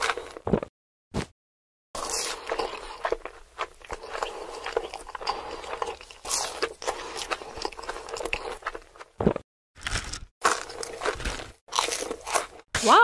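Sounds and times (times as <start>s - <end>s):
crisp crunching and crackling: 9.8s - 12.9s.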